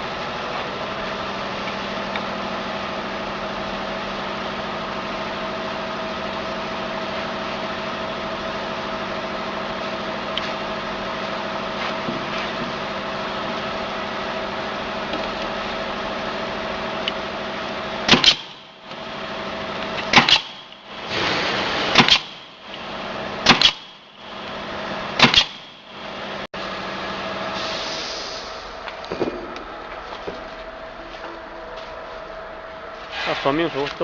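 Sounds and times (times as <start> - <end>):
gasoline engine running: 0.0 - 34.0.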